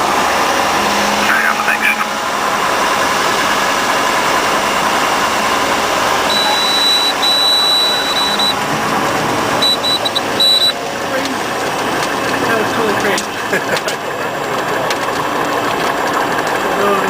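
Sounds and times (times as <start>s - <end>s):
high thin steady tone: 0.0s - 11.2s
aircraft engine running: 0.0s - 17.0s.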